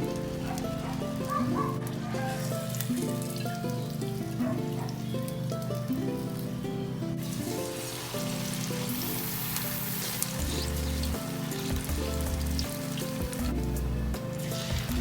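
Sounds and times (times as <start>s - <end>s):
background music: 0.0s - 15.0s
food sizzling in hot oil: 2.3s - 4.0s, 7.2s - 15.0s.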